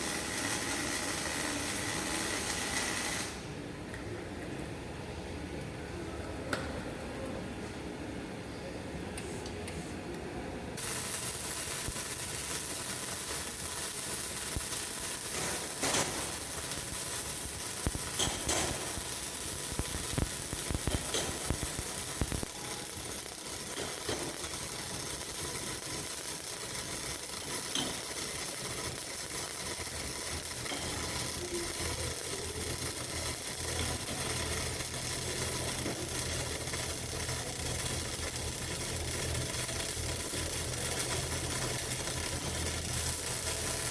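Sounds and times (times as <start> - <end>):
welding arc crackling hiss: 0.0 - 3.5, 10.8 - 43.9
welding pops: 10.8 - 43.9.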